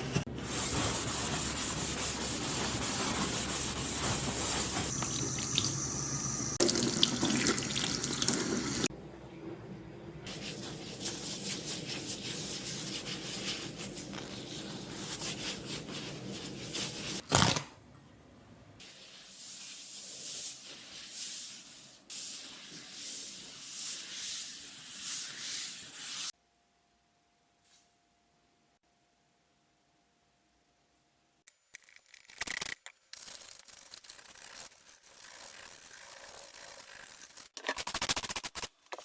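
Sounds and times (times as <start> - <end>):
rubbing strokes: 0.2 - 5.0, 10.3 - 17.2, 18.8 - 26.3.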